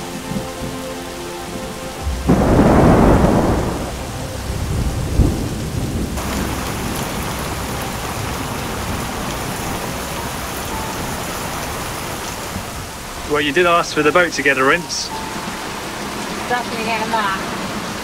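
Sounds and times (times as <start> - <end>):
heavy rain falling: 0.0 - 18.0
short low thunder boom: 2.0 - 6.8
thunderclap rumbling: 2.0 - 13.3.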